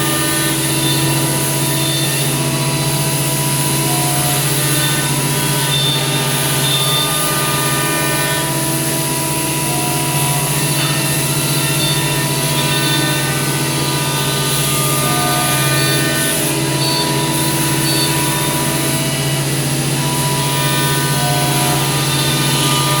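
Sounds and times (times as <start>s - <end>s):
cnc router machine hum and whine: 0.0s - 23.0s.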